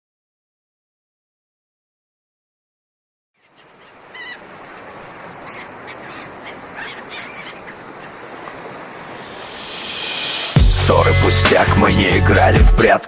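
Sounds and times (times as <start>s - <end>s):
surf washing: 3.4s - 12.0s
gulls crying: 3.4s - 12.7s.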